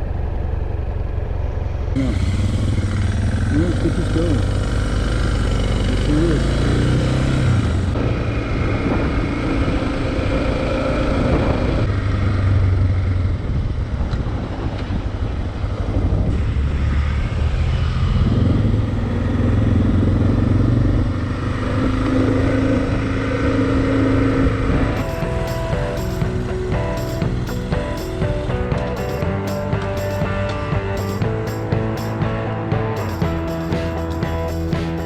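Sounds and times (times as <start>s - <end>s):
motorcycle engine revving: 0.0s - 14.0s, 16.3s - 35.0s
music: 24.9s - 35.0s.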